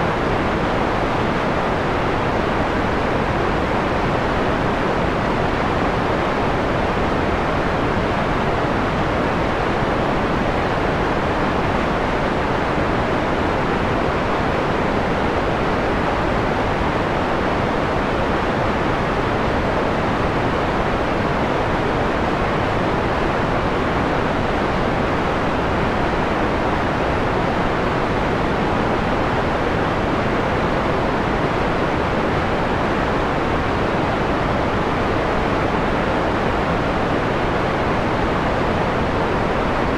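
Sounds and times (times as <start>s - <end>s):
soft filtered white noise: 0.0s - 39.9s.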